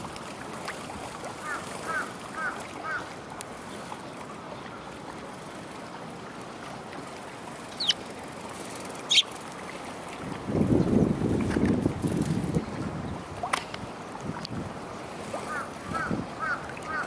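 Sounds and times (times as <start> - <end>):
sparrow chirping: 7.8 - 8.0
wind buffeting microphone: 10.1 - 16.8.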